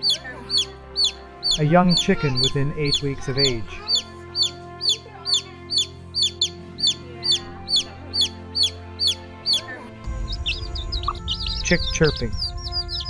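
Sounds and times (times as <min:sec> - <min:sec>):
chick peeping: 0:00.0 - 0:13.0
sustained background music tones: 0:00.0 - 0:13.0
low rumble: 0:10.0 - 0:13.0.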